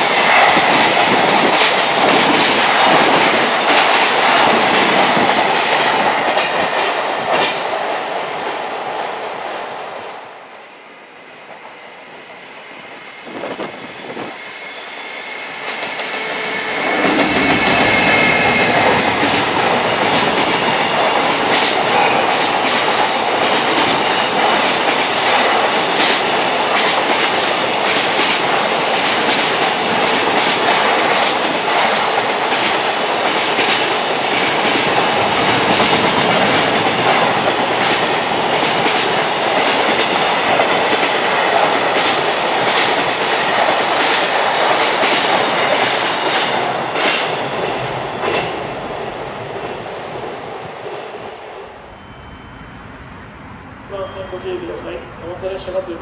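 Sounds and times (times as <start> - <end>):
freight train wheels clattering: 0.0 - 7.8, 15.5 - 49.9.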